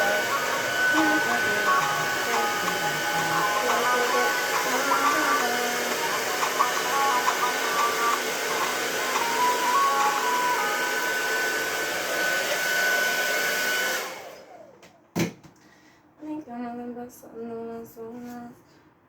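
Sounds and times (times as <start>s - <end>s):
person humming a tune: 0.0s - 11.0s
hair dryer blowing: 0.0s - 14.9s.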